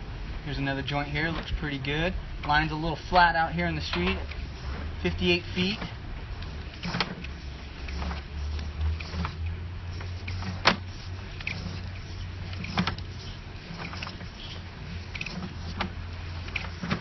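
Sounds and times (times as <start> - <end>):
low mechanical hum: 0.0 - 17.0
sharp clicks and knocks: 3.8 - 4.4.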